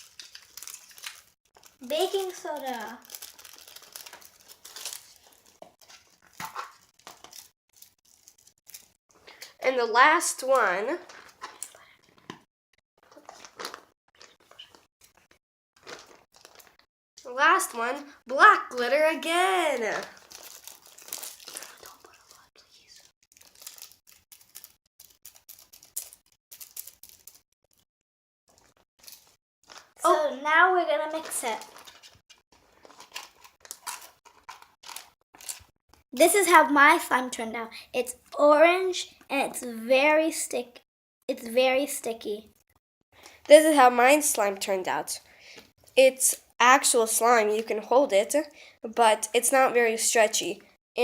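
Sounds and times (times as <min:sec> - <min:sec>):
packaging crinkling and rustling: 0:00.0 - 0:09.5, 0:11.0 - 0:12.4, 0:13.0 - 0:16.8, 0:19.7 - 0:27.8, 0:28.5 - 0:30.0, 0:31.1 - 0:35.7
craft supplies rustling and clicking: 0:31.2 - 0:35.7.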